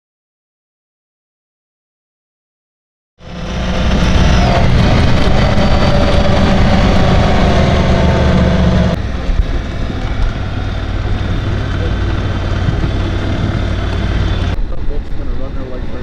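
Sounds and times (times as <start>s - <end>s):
snowmobile engine running: 3.2s - 16.0s.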